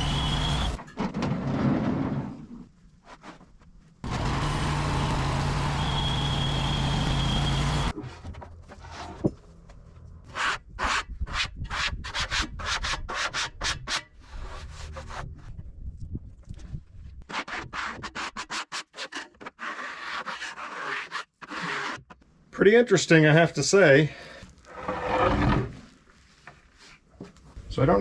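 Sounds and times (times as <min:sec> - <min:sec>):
sawmill engine with high whine: 0:00.0 - 0:00.8, 0:04.1 - 0:07.9.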